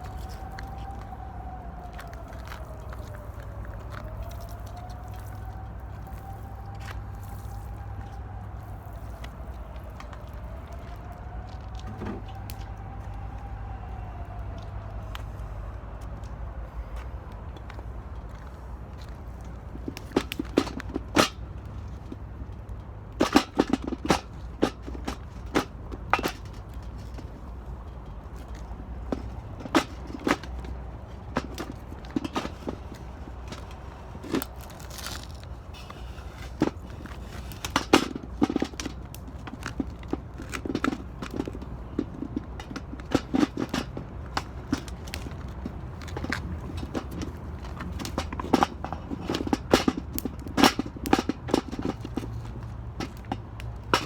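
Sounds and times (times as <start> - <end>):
wood fire crackling and popping: 30.5 - 54.0.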